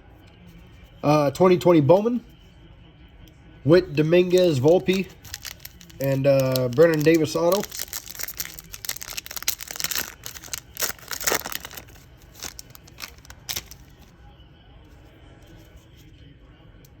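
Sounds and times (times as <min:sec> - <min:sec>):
card pack wrapper tearing: 0:04.2 - 0:14.1.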